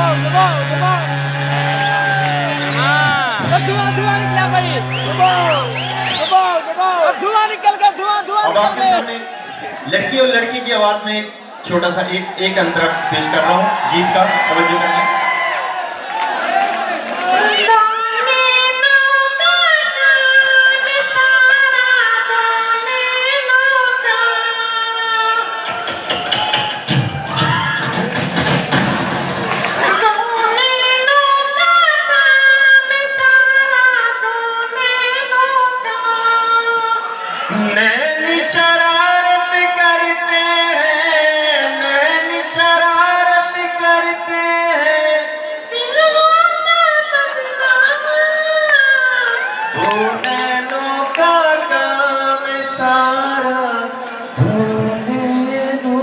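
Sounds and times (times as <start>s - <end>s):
man singing in high voice: 0.0s - 6.2s, 29.8s - 56.0s.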